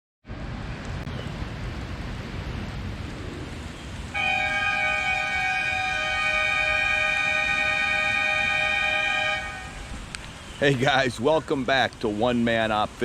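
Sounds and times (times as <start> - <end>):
wind rumbling on microphone: 0.3 - 13.0
steady warning siren chord: 1.2 - 10.0.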